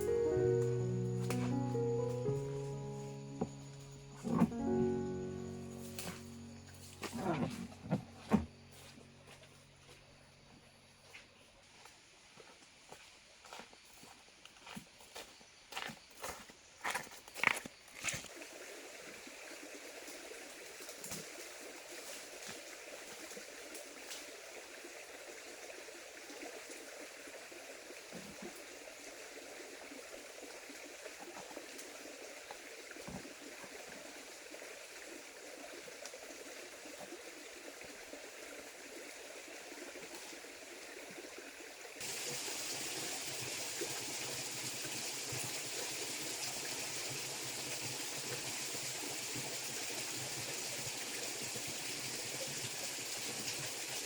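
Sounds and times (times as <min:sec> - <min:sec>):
stream flowing: 0:18.2 - 0:54.0.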